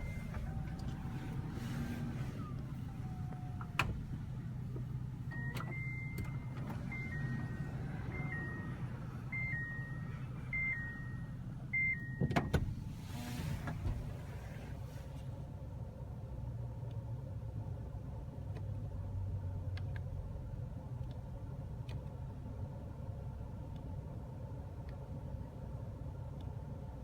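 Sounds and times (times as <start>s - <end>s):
sliding door motor hum: 0.0s - 11.6s, 12.7s - 15.0s
door latch clunks: 3.6s - 4.2s
two-tone electronic warning chime: 5.3s - 12.3s.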